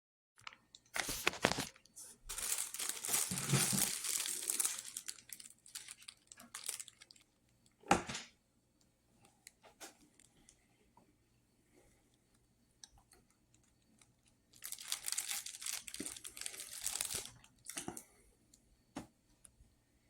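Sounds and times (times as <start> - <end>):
crinkling and rustling: 0.4 - 8.3, 9.4 - 11.0, 13.0 - 18.2.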